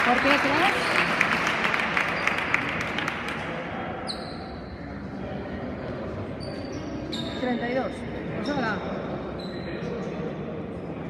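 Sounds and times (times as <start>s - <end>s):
applause and crowd noise: 0.0s - 3.8s.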